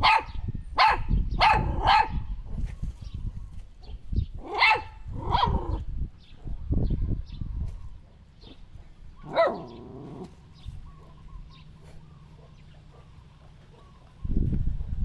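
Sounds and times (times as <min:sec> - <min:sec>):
dog barking: 0:00.0 - 0:02.2, 0:04.4 - 0:05.8, 0:09.2 - 0:10.2, 0:12.3 - 0:14.0.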